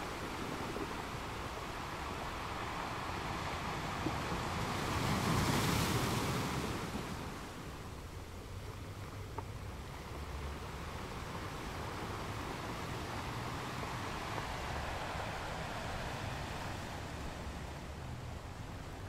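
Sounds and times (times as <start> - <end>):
wind on microphone: 0.0 - 7.5
sea waves washing: 0.0 - 8.9, 9.5 - 19.0.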